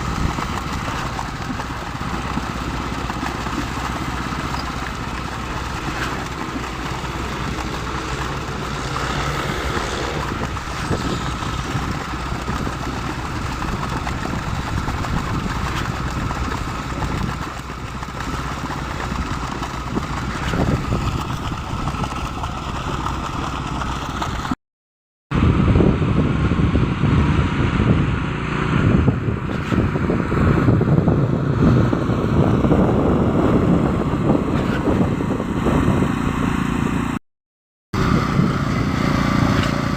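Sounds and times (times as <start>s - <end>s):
concrete pump truck engine running: 0.0s - 24.6s, 38.0s - 39.9s.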